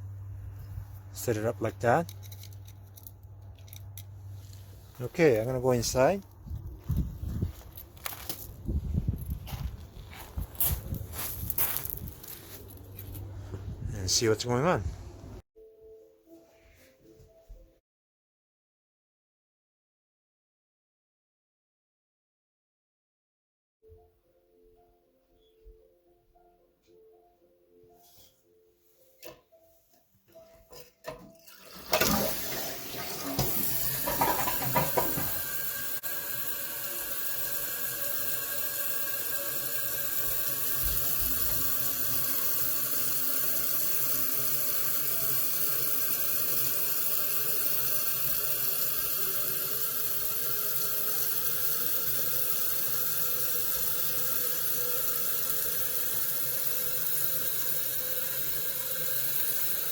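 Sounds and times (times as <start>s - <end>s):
toilet flushing: 31.1s - 59.9s
toilet tank refilling hiss: 31.5s - 59.9s.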